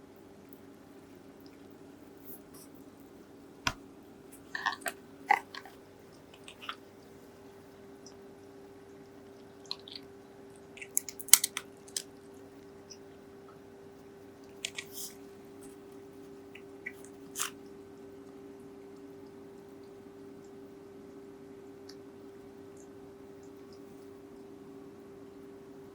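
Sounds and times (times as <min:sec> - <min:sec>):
faint steady hum: 0:00.0 - 0:25.9
cat crunching dry kibble: 0:04.4 - 0:06.9, 0:10.8 - 0:12.2, 0:14.6 - 0:15.2.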